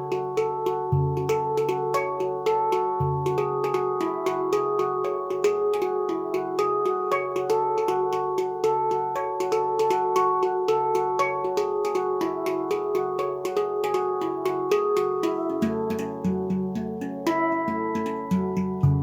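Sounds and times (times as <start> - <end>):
steel drum notes ringing: 0.0 - 19.0.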